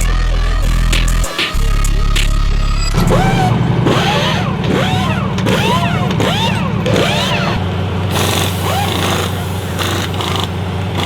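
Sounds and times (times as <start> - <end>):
background music with bass line: 0.0 - 4.6
truck engines revving: 0.0 - 11.0.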